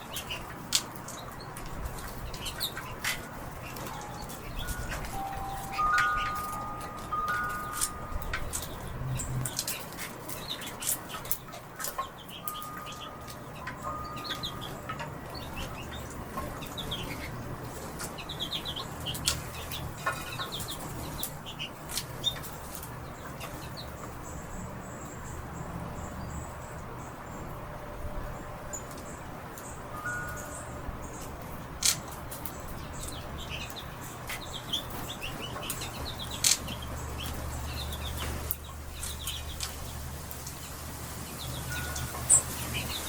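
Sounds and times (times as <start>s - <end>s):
small birds chirping: 0.0s - 43.0s
held chime tones: 3.9s - 8.9s, 12.4s - 15.2s, 30.0s - 30.9s.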